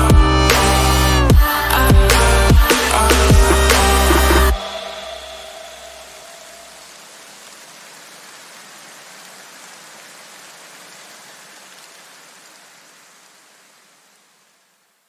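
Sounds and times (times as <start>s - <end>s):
rain-like hiss: 0.6s - 15.0s.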